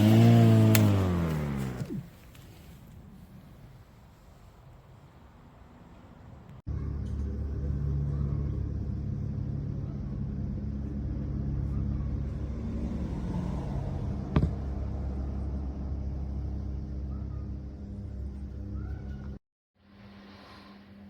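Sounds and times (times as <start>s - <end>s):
lawnmower motor and blade running: 0.0s - 2.7s.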